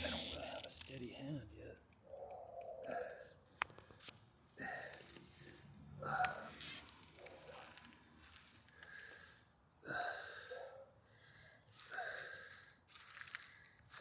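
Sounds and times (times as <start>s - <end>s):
person breathing heavily: 4.6s - 6.9s, 8.7s - 13.8s.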